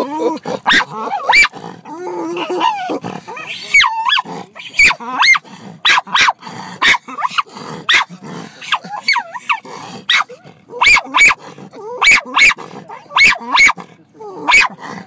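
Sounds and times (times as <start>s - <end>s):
dog barking: 0.6s - 1.5s, 3.7s - 11.4s, 12.0s - 14.8s
dog whining yelps: 0.7s - 8.1s, 8.7s - 14.8s.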